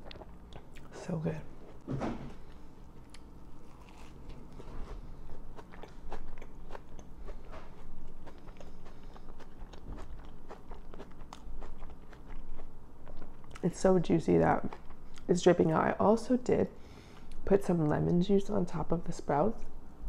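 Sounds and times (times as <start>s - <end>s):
person chewing with mouth clicks: 0.0s - 0.9s, 2.5s - 13.6s, 14.7s - 15.3s.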